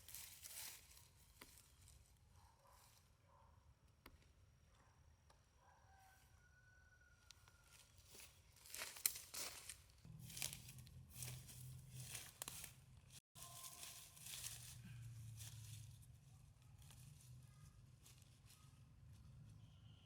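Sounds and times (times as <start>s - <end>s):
rustling and crinkling handling noises: 0.0s - 2.1s, 8.0s - 19.2s.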